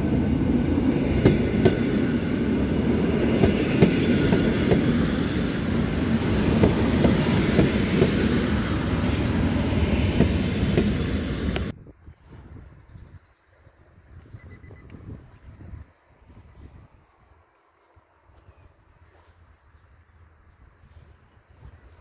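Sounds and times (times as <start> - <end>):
train rumbling past: 0.0 - 11.7
brief hiss: 9.0 - 9.6.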